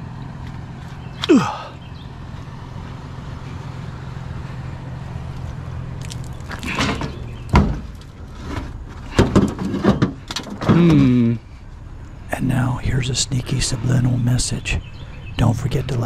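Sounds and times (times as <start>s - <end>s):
vehicle engine idling: 0.0s - 16.0s
rattling clatter: 6.0s - 10.9s.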